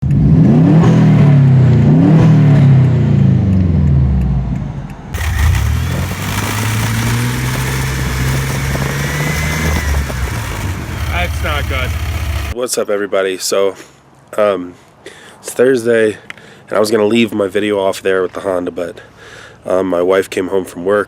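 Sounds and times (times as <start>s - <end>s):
car engine revving: 5.2s - 12.6s
engine running steadily: 5.2s - 12.6s.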